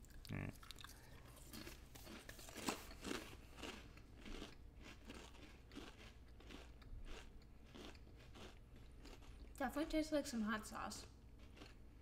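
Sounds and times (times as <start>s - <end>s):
crackers being chewed: 0.0s - 9.6s, 11.0s - 12.0s.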